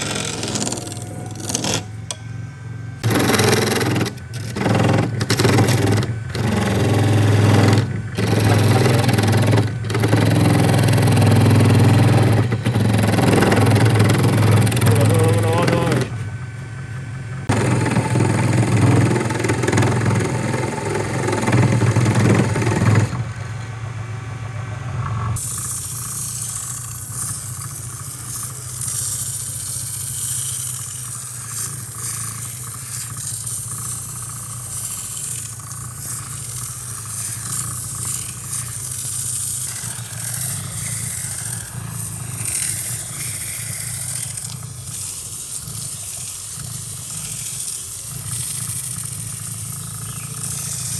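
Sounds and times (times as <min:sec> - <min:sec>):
machine motor running: 0:00.0 - 0:50.9
hiss: 0:25.4 - 0:50.9.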